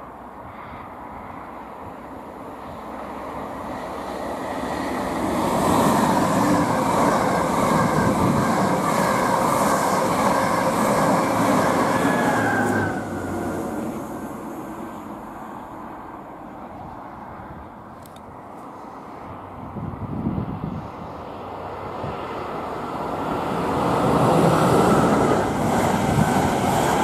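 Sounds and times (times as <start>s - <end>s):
train wheels rushing on rails: 1.2s - 16.1s, 20.5s - 27.0s.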